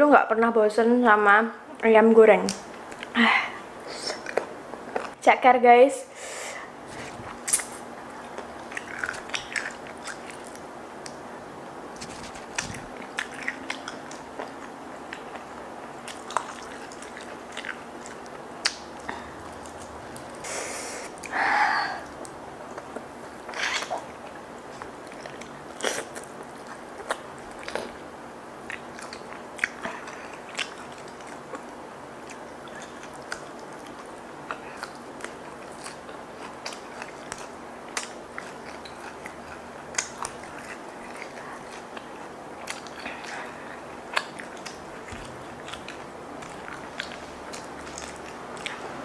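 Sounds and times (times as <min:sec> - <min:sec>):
chewing food: 0:04.1 - 0:05.2, 0:06.8 - 0:11.2, 0:11.9 - 0:20.4, 0:22.0 - 0:49.0
wet mouth clicks: 0:07.0 - 0:07.8.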